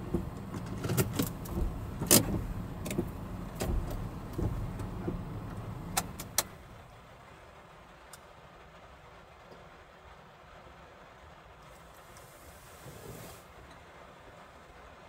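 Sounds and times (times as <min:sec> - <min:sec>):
sharp clicks and knocks: 0:00.0 - 0:06.6
light truck rumbling: 0:00.0 - 0:15.0.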